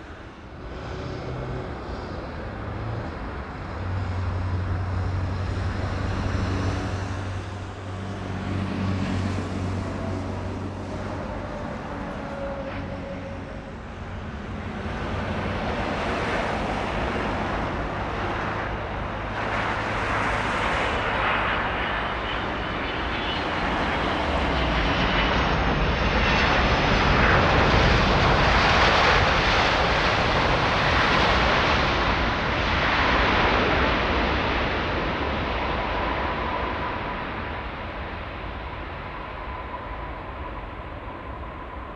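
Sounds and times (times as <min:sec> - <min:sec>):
jet airliner engines roaring: 0:00.0 - 0:41.9.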